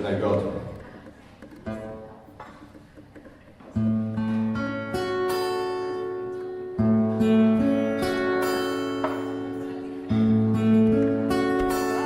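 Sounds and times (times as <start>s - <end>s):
acoustic guitar strummed chords: 3.8s - 12.0s.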